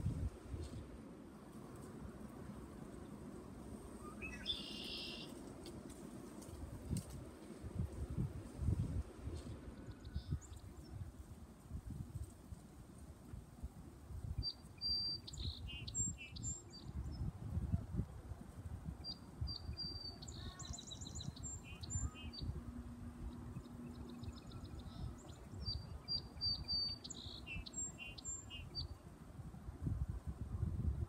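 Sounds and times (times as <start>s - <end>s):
bird chirping and whistling: 4.2s - 5.3s.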